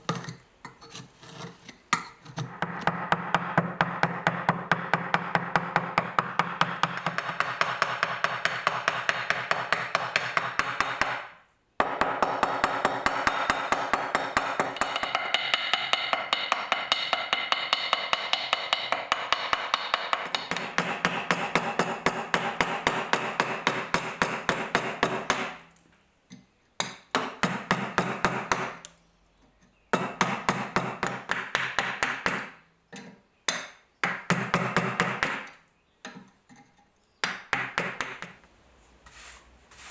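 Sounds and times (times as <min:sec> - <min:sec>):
hammer striking metal: 0:11.8 - 0:25.6.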